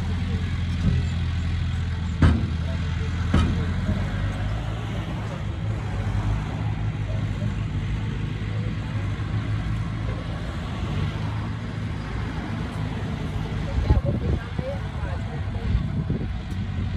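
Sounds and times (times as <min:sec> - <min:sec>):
heavy diesel engine running: 0:00.0 - 0:16.9.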